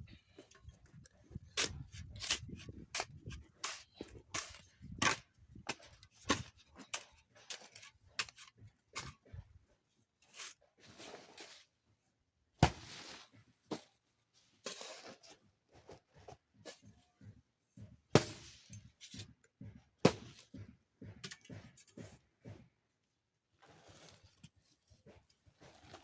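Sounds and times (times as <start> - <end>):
small knocks and scrapes: 0.1 - 11.8, 18.4 - 22.8, 23.5 - 26.0.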